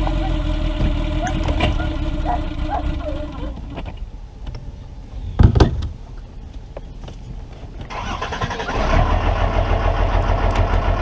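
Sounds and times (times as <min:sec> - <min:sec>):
boat motor running rough: 0:00.0 - 0:03.7.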